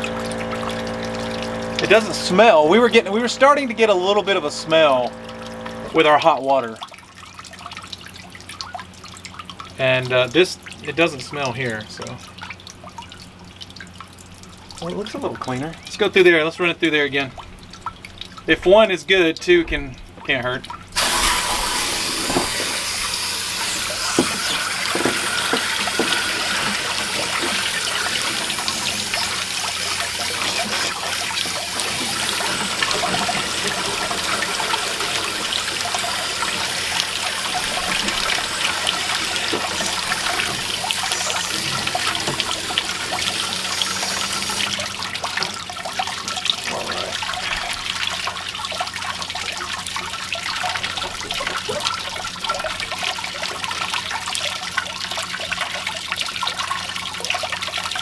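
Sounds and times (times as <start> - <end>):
water jet rushing hiss: 0.0 - 6.4, 21.0 - 45.4.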